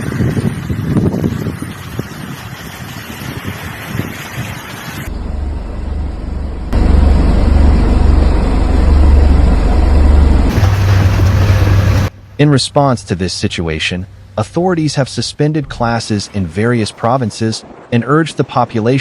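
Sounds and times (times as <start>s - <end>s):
wind buffeting microphone: 0.0s - 5.1s.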